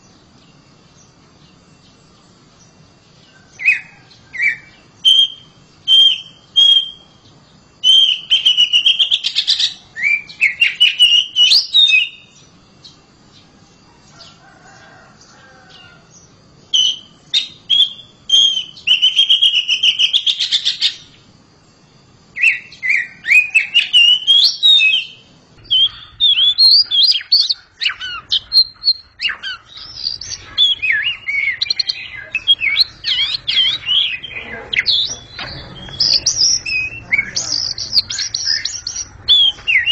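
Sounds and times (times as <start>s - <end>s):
songbird singing whistled phrases: 3.6s - 7.2s, 7.8s - 12.5s, 16.7s - 21.1s, 22.4s - 39.9s.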